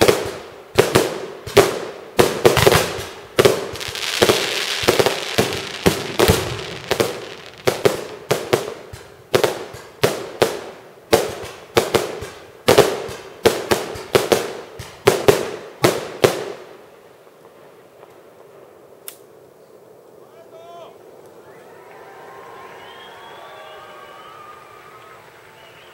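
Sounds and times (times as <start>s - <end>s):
fireworks bangs with echo: 0.0s - 16.8s.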